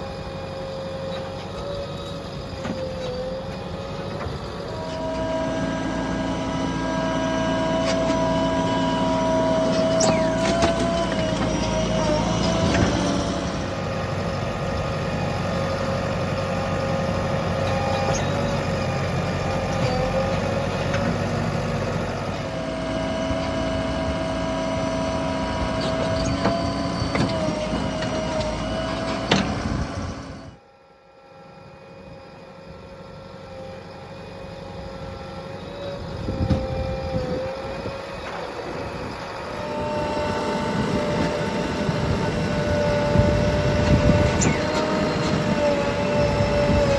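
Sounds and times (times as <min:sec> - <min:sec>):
diesel engines running: 0:00.0 - 0:46.9.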